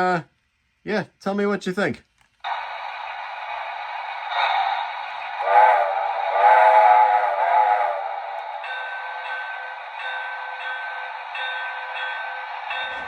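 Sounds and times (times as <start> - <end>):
model train steam whistle: 5.4 - 8.5.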